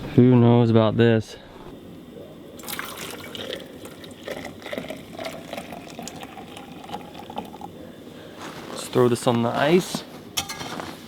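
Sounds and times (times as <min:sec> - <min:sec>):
eggs sizzling in a pan: 0:02.6 - 0:08.5.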